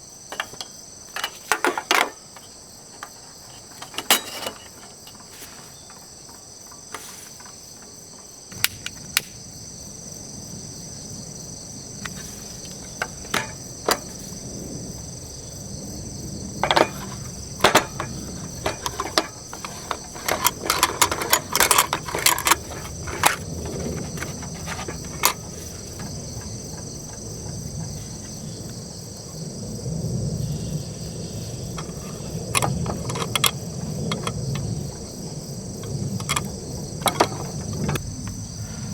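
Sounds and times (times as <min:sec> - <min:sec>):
crickets trilling: 0:00.0 - 0:38.9
clicks and knocks: 0:00.3 - 0:05.3, 0:12.0 - 0:14.3, 0:16.6 - 0:28.0, 0:31.8 - 0:35.0, 0:35.8 - 0:38.0.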